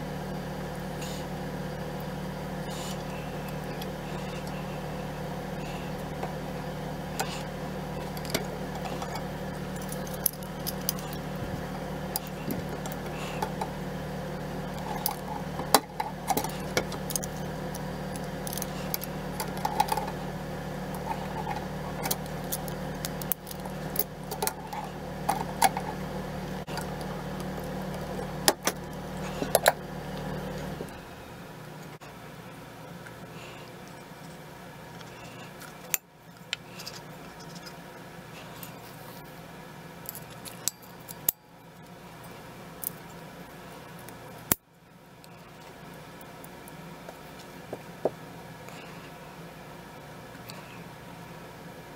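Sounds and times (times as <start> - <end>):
steady low hum: 0.0 - 51.9
metal parts clicking and clinking: 8.0 - 11.2, 14.6 - 20.2, 20.9 - 26.0, 40.0 - 41.4.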